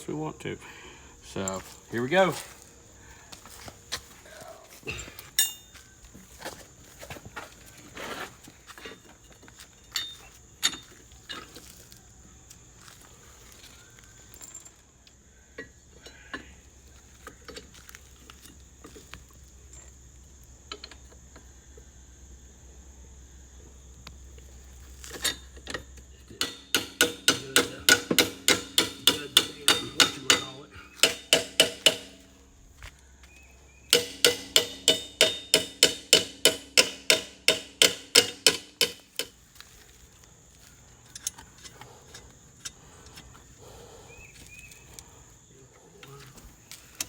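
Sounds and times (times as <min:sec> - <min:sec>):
rapid metal-on-metal strikes: 0:26.4 - 0:32.3, 0:33.9 - 0:39.3.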